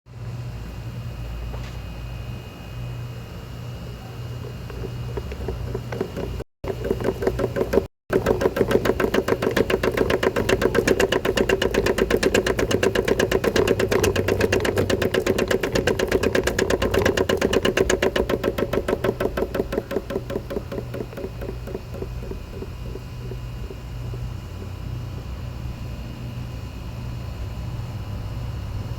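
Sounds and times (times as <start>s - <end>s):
washing machine running: 3.0s - 27.5s
fast suspension knocking: 4.4s - 24.9s.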